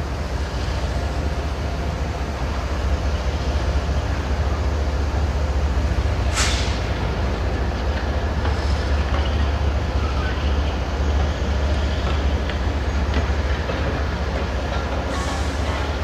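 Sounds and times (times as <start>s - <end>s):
diesel locomotive rumbling: 0.0s - 16.0s
short hiss: 6.3s - 6.9s.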